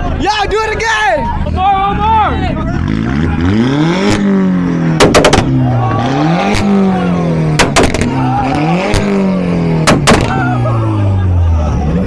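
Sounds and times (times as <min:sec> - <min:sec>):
car engine revving: 0:01.3 - 0:12.0
exhaust pops and bangs: 0:04.0 - 0:10.6.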